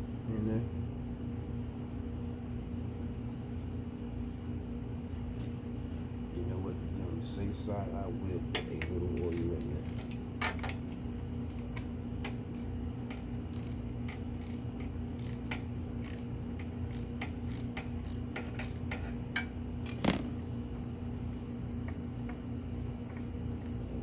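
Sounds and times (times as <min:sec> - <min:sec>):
steady low hum: 0:00.0 - 0:24.0
tools clicking and clinking: 0:08.6 - 0:11.9, 0:12.6 - 0:14.6.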